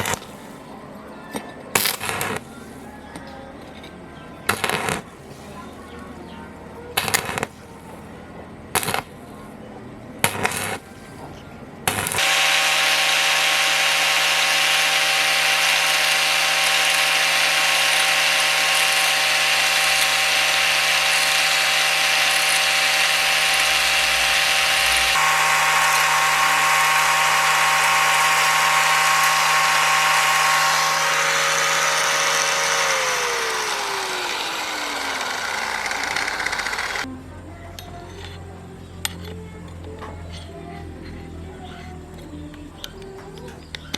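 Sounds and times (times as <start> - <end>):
power tool whining: 0.0 - 0.5, 11.9 - 37.1.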